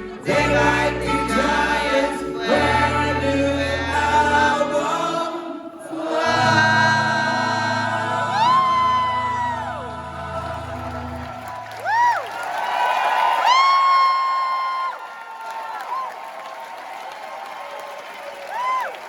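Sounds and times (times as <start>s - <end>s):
voices singing in harmony: 0.0s - 11.7s
bass and keyboard chords: 0.0s - 11.8s.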